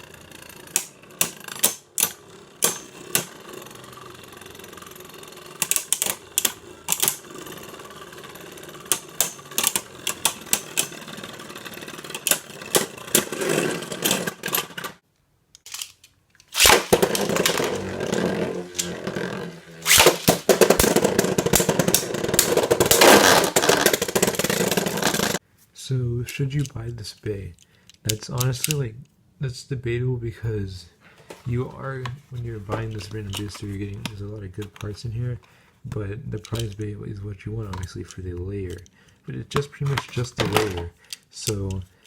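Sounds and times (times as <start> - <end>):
spinning tops clashing clicks: 0.0 - 14.9, 15.6 - 25.4
spinning tops whirring: 0.0 - 15.0, 16.4 - 25.4.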